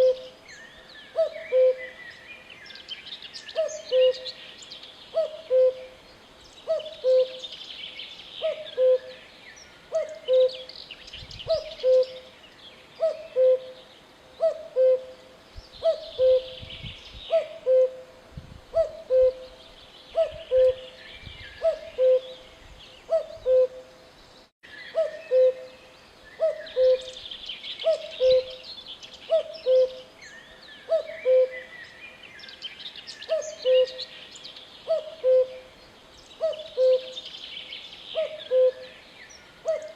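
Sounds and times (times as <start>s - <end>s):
cuckoo calling: 0.0s - 0.4s, 1.1s - 2.0s, 3.5s - 4.4s, 5.1s - 6.0s, 6.6s - 7.5s, 8.4s - 9.2s, 9.8s - 10.8s, 11.5s - 12.3s, 13.0s - 13.8s, 14.4s - 15.2s, 15.8s - 16.7s, 17.3s - 18.1s, 18.7s - 23.9s, 24.8s - 25.8s, 26.4s - 28.7s, 29.3s - 30.1s, 30.8s - 31.7s, 33.2s - 34.1s, 34.8s - 35.7s, 36.4s - 37.3s, 38.1s - 39.0s, 39.6s - 39.9s.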